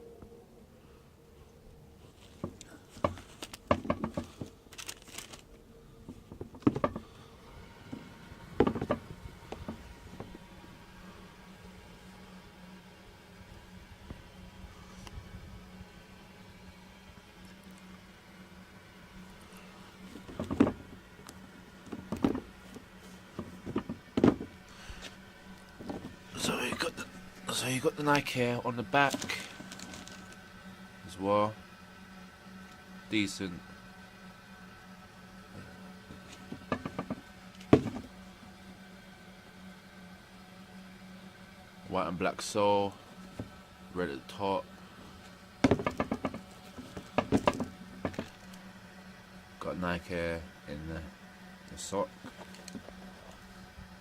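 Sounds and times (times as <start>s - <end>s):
low hum: 0.0s - 54.0s
sneaker handling knocks and rustles: 20.1s - 21.0s, 21.8s - 25.2s, 25.8s - 26.9s, 36.1s - 38.1s, 45.6s - 48.4s.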